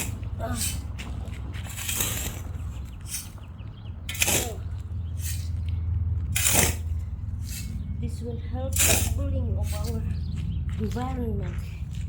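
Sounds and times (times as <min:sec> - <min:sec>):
soil swishes: 0:00.0 - 0:03.4, 0:04.1 - 0:05.6, 0:06.3 - 0:07.7, 0:08.7 - 0:10.0
steady low rumble: 0:00.0 - 0:12.0.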